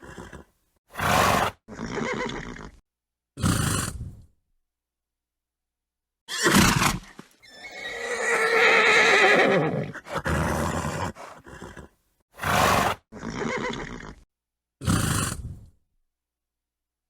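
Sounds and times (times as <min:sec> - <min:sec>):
horse snorts: 0:00.0 - 0:02.8, 0:03.4 - 0:04.3, 0:06.3 - 0:14.2, 0:14.8 - 0:15.8
horse whinnying: 0:00.0 - 0:02.8, 0:06.3 - 0:14.2.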